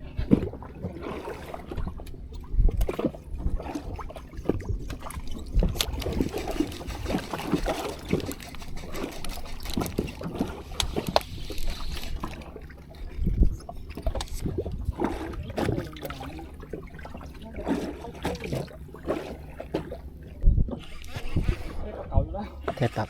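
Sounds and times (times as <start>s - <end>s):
water lapping against boat hull: 0.0s - 23.0s.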